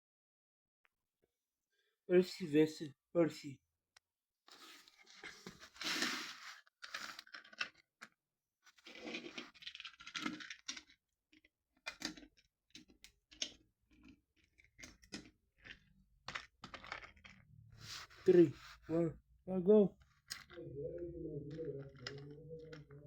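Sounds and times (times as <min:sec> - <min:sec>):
plastic toy trains being handled: 0:04.5 - 0:18.8, 0:21.5 - 0:23.0.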